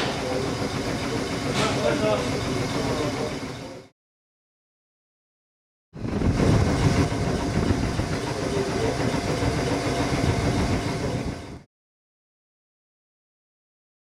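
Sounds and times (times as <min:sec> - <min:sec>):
electric train humming and rumbling: 0:00.0 - 0:03.9, 0:06.0 - 0:11.7.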